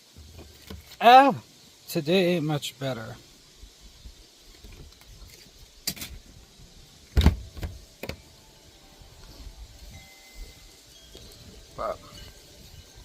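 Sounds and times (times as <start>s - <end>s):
heavy thump: 7.1s - 8.2s.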